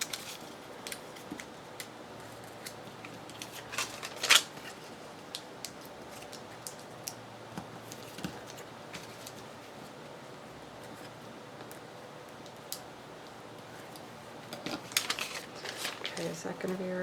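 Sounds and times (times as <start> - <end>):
paper crinkling: 0.0 - 7.2, 13.8 - 16.9.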